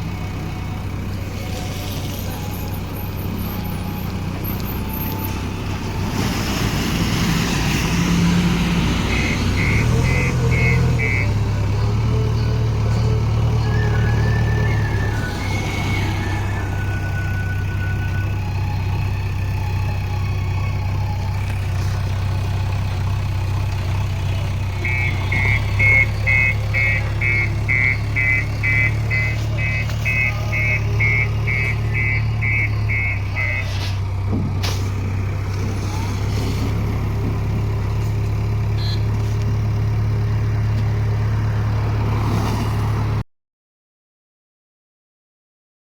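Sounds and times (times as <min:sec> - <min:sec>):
diesel engine running: 0:00.0 - 0:43.2
reversing alarm beeping: 0:09.0 - 0:11.6, 0:12.3 - 0:19.0, 0:24.8 - 0:34.0.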